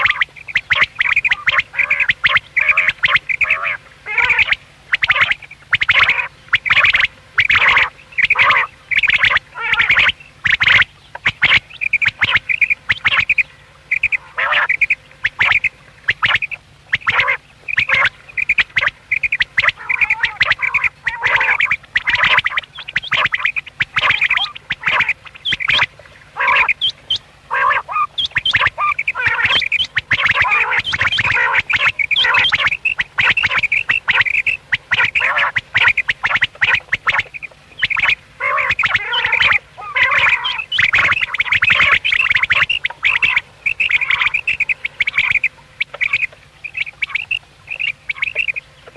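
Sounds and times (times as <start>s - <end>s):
quail calling: 0.0s - 48.9s.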